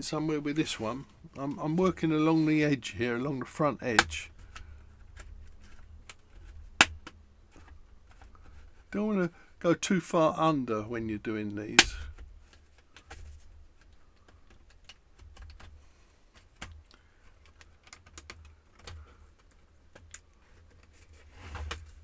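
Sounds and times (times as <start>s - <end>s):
plastic clips clicking: 3.9s - 4.2s, 11.8s - 12.1s.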